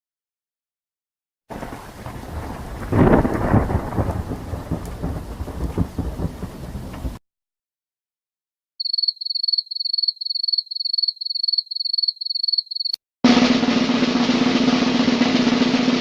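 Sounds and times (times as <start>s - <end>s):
cricket chirping: 8.8s - 13.0s
snare drum roll: 13.2s - 16.0s.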